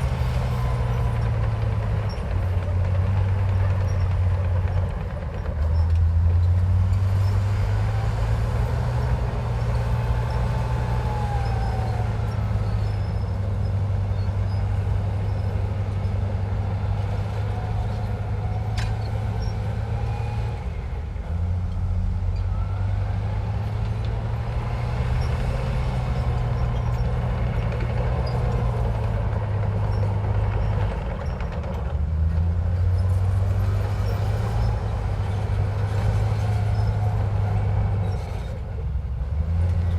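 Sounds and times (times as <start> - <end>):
bulldozer diesel engine rumbling: 0.0 - 39.9
faint high squeals: 6.9 - 20.6, 22.2 - 23.8, 35.8 - 38.6.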